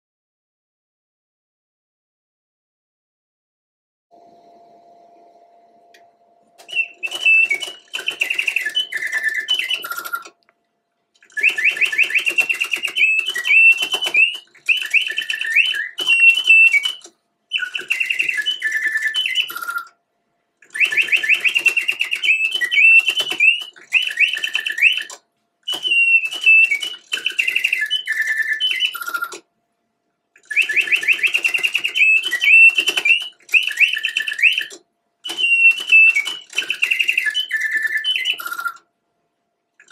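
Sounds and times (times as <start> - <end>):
mechanical bird whistle trilling: 6.6 - 10.4, 11.2 - 19.9, 20.6 - 29.4, 30.4 - 38.8.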